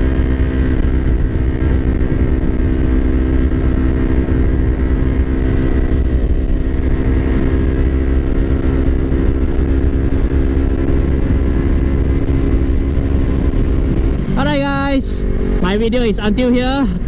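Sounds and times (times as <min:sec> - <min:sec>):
motorcycle engine running: 0:00.0 - 0:17.0
wind rumble on microphone: 0:00.0 - 0:17.0.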